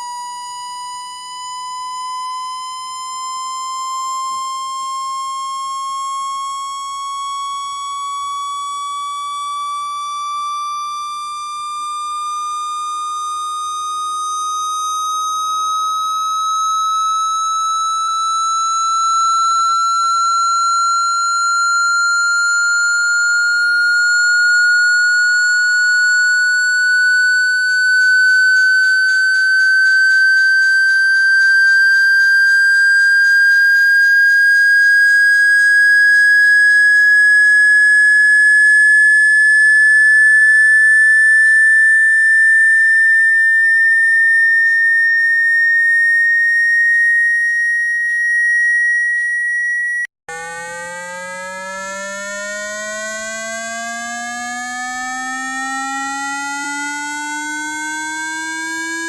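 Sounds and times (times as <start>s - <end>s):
high tone sliding upward: 12.9s - 59.0s
lower buzzy rising tone: 50.3s - 59.0s.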